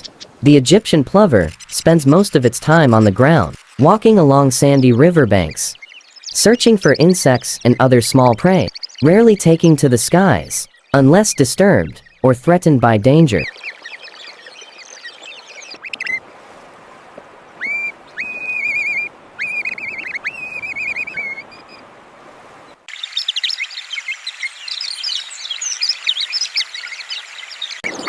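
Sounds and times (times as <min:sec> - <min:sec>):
chorus of birds chirping: 0:00.0 - 0:16.5, 0:17.1 - 0:22.0, 0:22.6 - 0:28.0
bird calls with trilled note: 0:13.3 - 0:16.2, 0:17.5 - 0:21.8.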